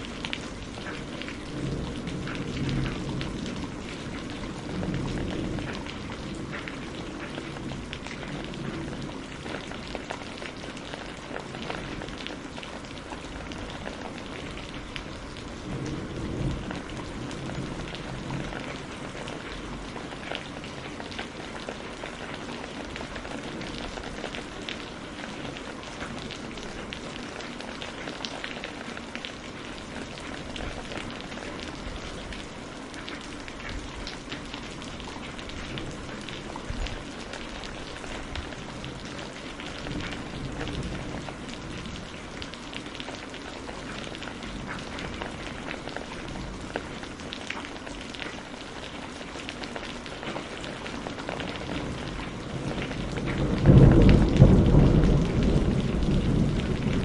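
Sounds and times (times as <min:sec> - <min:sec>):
raindrops ticking: 0:00.0 - 0:57.0
distant thunder rumble: 0:00.8 - 0:24.7, 0:33.6 - 0:42.8, 0:51.5 - 0:57.0.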